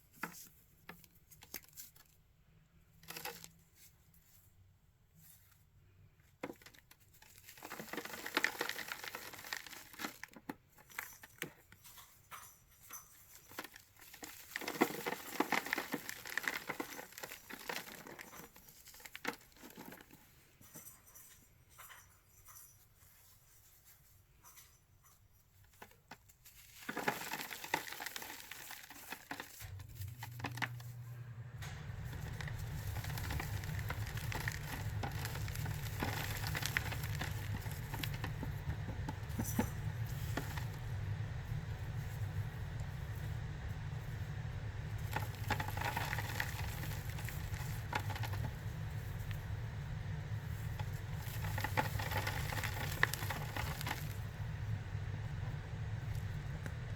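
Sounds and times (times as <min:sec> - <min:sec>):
powder chunks crunching: 0:06.6 - 0:10.4, 0:13.6 - 0:20.0, 0:26.6 - 0:41.2, 0:44.8 - 0:49.6, 0:50.2 - 0:55.4
low rumble: 0:29.7 - 0:56.9.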